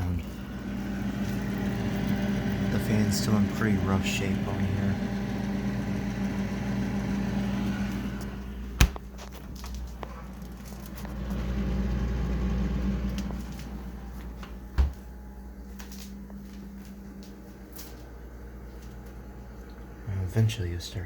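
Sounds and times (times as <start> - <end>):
refrigerator compressor hum: 0.0 - 21.0.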